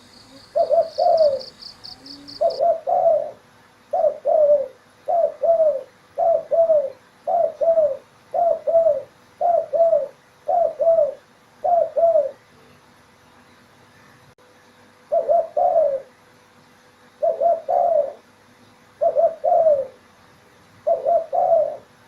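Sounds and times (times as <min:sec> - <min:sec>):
dove cooing: 0:00.0 - 0:12.4, 0:15.1 - 0:16.1, 0:17.2 - 0:18.3, 0:19.0 - 0:20.0, 0:20.8 - 0:22.0.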